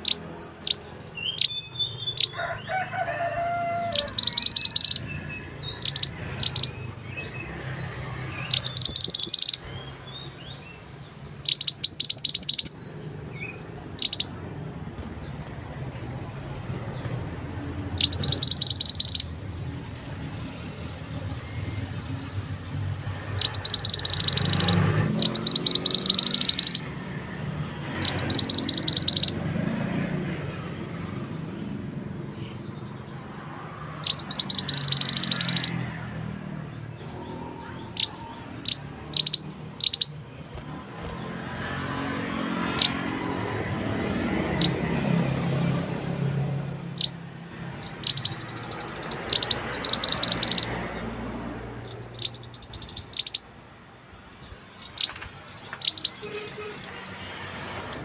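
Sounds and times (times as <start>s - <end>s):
bird singing rapid trills: 0.0s - 2.7s, 3.7s - 29.8s, 31.8s - 53.6s, 54.2s - 58.0s
sharp bird chips: 0.0s - 2.7s, 3.7s - 15.6s, 16.3s - 19.9s, 23.2s - 29.4s, 33.9s - 36.0s, 36.8s - 43.3s, 44.4s - 45.0s, 46.2s - 51.0s, 51.8s - 53.6s, 54.4s - 58.0s.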